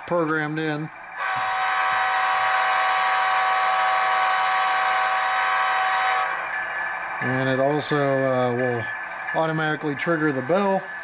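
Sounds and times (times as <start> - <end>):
model locomotive air horn blast: 1.2 - 6.4.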